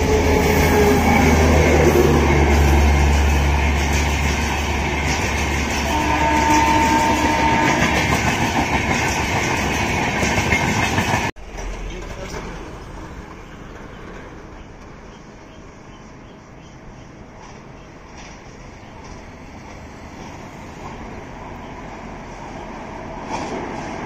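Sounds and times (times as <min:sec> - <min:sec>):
train deep rumble: 0:00.0 - 0:24.0
wheels clattering over rail joints: 0:03.2 - 0:15.0.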